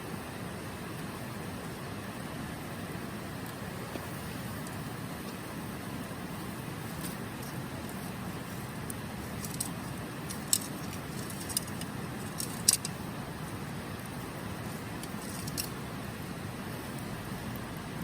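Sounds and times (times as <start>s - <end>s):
river flowing over stones: 0.0s - 18.0s
campfire crackling and popping: 6.3s - 18.0s.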